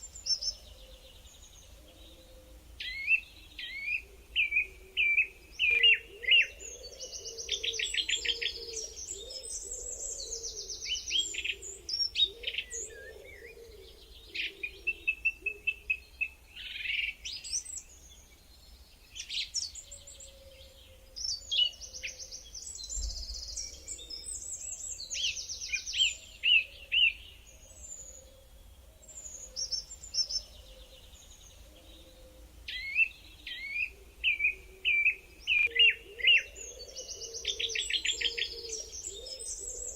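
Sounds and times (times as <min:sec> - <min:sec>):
birds singing and calling: 0:00.0 - 0:39.9.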